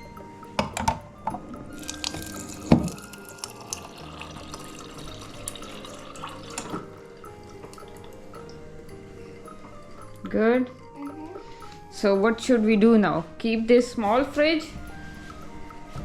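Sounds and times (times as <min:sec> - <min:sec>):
glass knocking on dispenser: 0:00.6 - 0:03.0
water pouring into a glass: 0:01.7 - 0:08.6.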